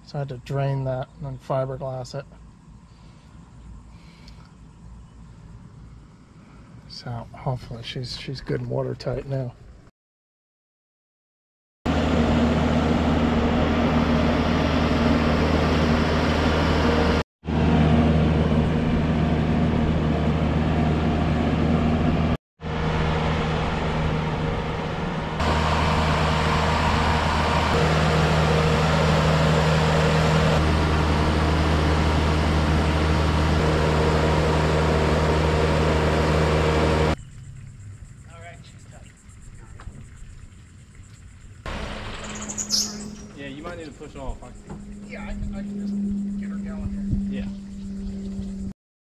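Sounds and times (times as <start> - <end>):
engine humming: 11.9 - 48.8.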